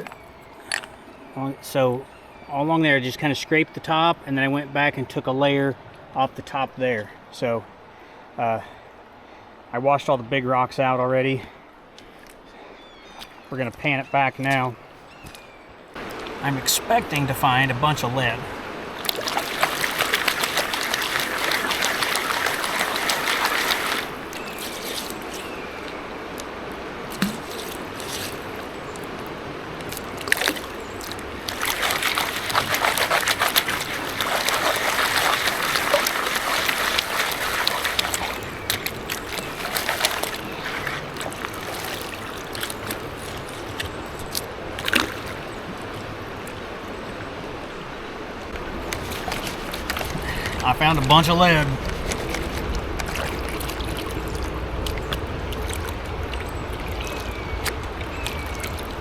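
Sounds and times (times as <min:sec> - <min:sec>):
water sloshing in a pan: 0:19.0 - 0:26.5, 0:27.1 - 0:45.1, 0:48.6 - 0:59.0.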